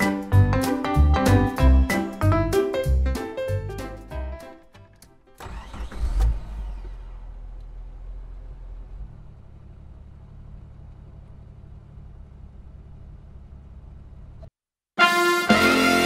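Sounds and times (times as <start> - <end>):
car engine idling: 4.8 - 14.5.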